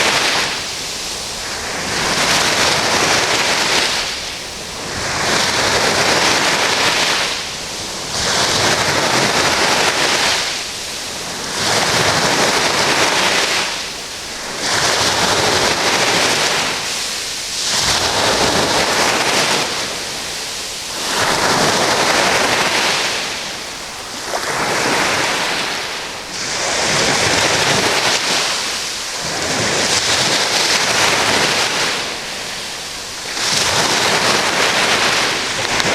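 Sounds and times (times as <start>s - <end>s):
sea waves washing in: 0.0s - 35.9s.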